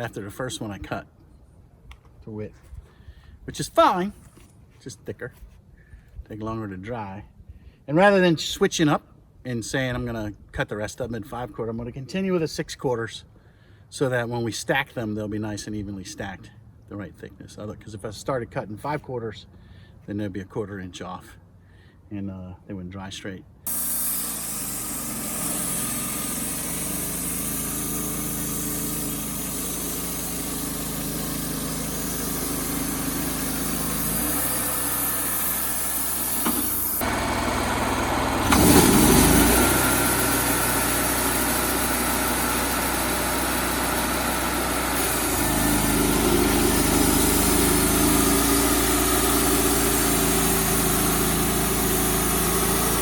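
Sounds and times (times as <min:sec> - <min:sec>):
band saw cutting log: 0:23.7 - 0:53.0
sawmill engine running: 0:23.7 - 0:53.0.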